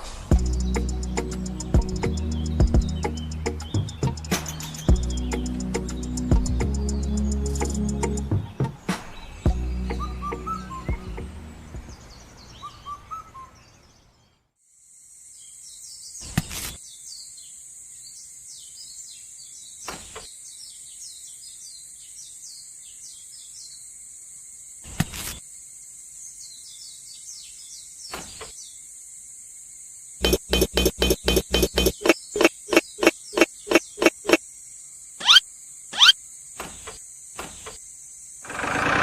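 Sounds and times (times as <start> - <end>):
rhythmic music: 0.3 - 8.6, 30.2 - 32.2
bird chirps: 0.3 - 14.4, 30.2 - 34.4, 35.2 - 36.2
high-pitched insect buzz: 30.2 - 36.2.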